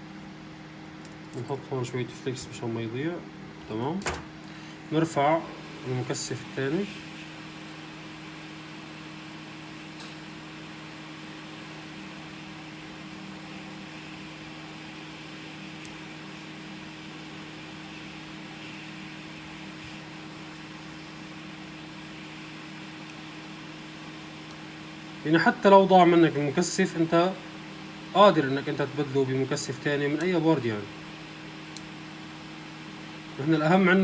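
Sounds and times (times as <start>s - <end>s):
hot air station blowing: 4.0s - 7.4s.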